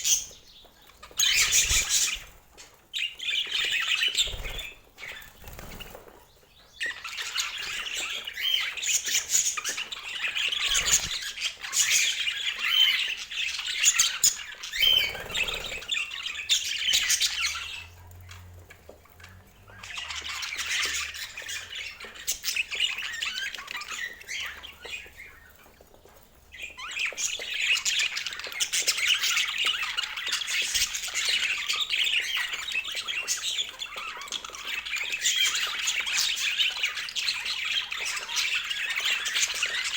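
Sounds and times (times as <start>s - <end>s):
budgerigars chattering: 6.8s - 25.3s.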